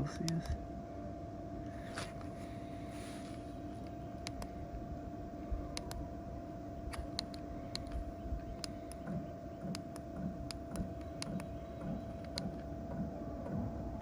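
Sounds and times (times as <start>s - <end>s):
heater blower whine: 0.0s - 14.0s
sharp ticks: 3.8s - 4.5s, 6.9s - 13.1s.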